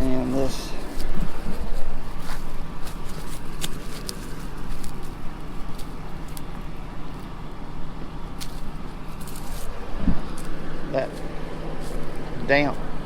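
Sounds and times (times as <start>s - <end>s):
combine engine humming: 0.0s - 13.0s
clicks and crackles: 1.0s - 7.3s.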